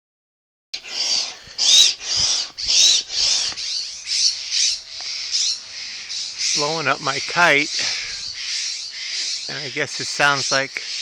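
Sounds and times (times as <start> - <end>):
hand pump squeaking strokes: 0.8 - 3.6.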